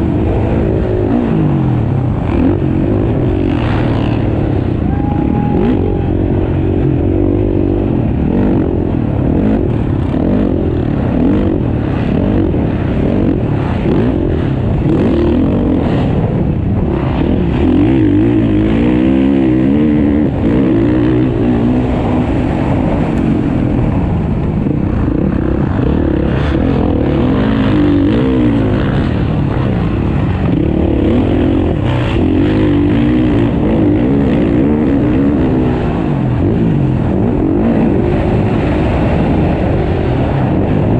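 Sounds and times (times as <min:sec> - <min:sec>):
motocross bikes revving: 0:00.0 - 0:40.9.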